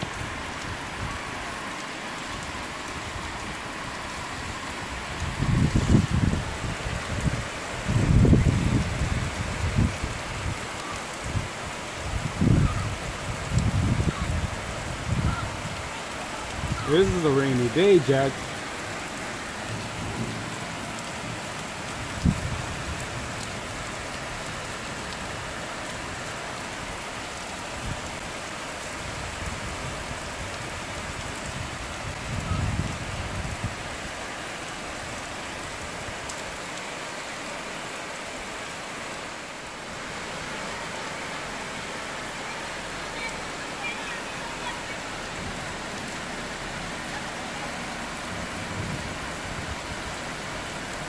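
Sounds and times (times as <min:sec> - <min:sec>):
heavy rain hissing: 0:00.0 - 0:51.0.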